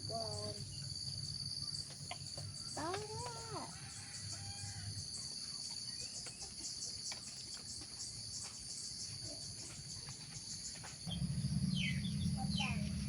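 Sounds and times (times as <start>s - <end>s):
high-pitched insect chorus: 0.0s - 13.0s
faint bird chirps: 1.6s - 13.0s
low rumble: 11.1s - 13.0s.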